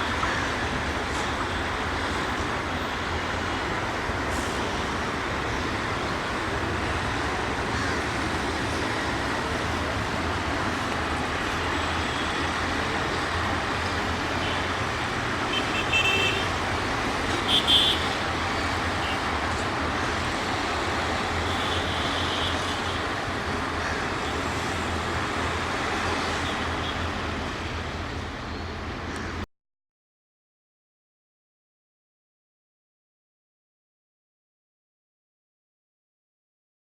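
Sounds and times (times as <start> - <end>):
train wheels rumbling on track: 0.0 - 29.4.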